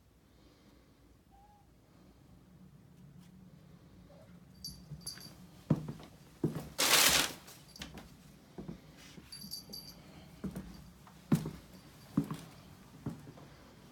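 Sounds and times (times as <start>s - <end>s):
high metallic jingle: 4.5s - 5.4s, 9.3s - 10.1s.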